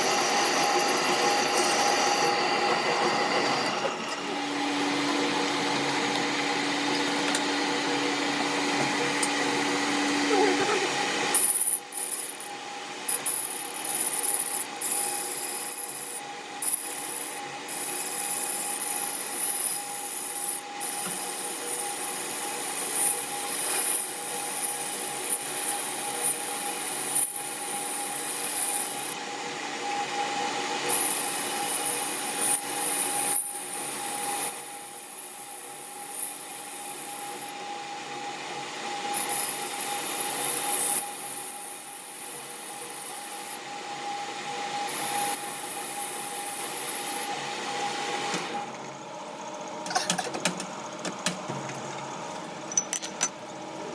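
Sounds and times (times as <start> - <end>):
tool rasping on metal: 0.0 - 4.4, 10.3 - 29.2
machine motor humming: 1.5 - 12.5.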